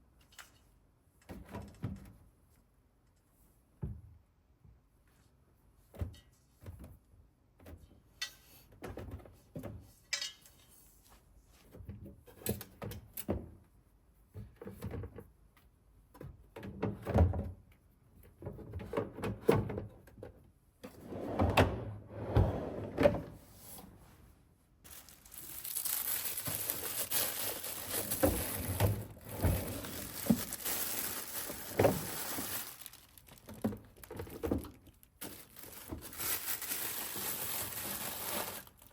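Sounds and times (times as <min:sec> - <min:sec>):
knocks and clunks of objects set down: 0:33.4 - 0:36.0.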